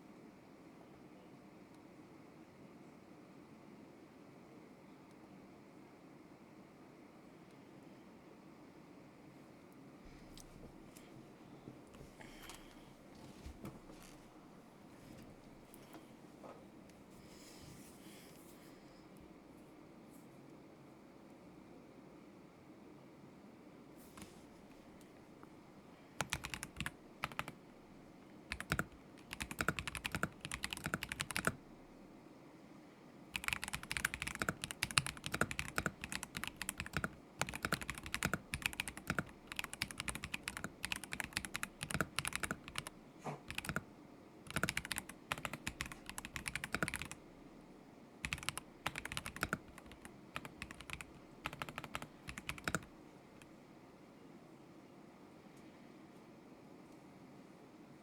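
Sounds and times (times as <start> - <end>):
mechanical keyboard typing: 26.2 - 27.6, 28.5 - 31.6, 33.3 - 43.9, 44.5 - 47.2, 48.2 - 53.5.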